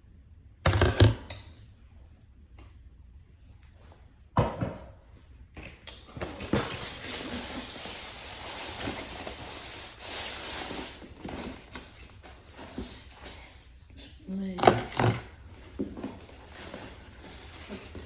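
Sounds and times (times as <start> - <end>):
dense crackling and rustling: 6.2 - 13.2, 15.4 - 18.0.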